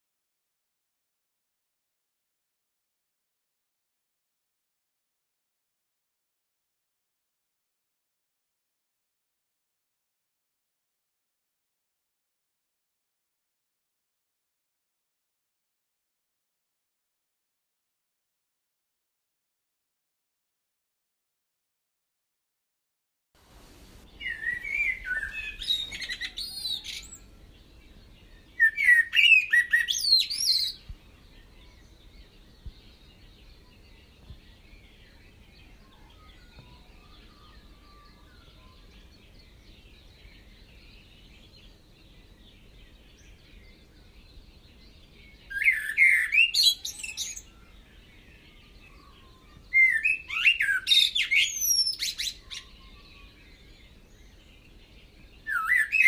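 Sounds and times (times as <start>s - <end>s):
faint steady hiss: 23.4s - 45.6s
bird singing warbling whistles: 24.2s - 27.3s, 28.6s - 30.8s, 45.5s - 47.6s, 49.0s - 53.3s, 55.5s - 56.0s.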